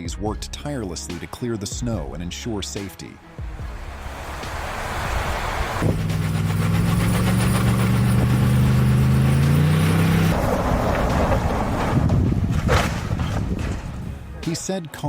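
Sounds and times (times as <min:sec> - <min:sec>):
noisy rush: 0:03.4 - 0:14.4
vehicle engine running: 0:03.4 - 0:14.4.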